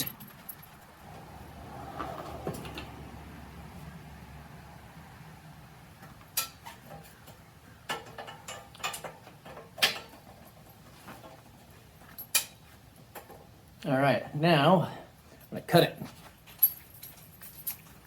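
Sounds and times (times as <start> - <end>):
metallic clicks and clinks: 0.0 - 0.8, 12.0 - 13.3, 16.4 - 18.0.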